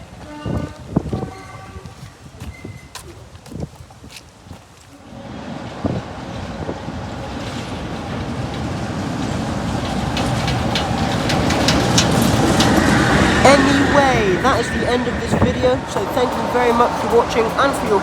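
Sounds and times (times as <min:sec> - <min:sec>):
wheels clicking and squeaking: 0:00.0 - 0:03.3, 0:07.2 - 0:18.0
train running noise: 0:00.0 - 0:18.0.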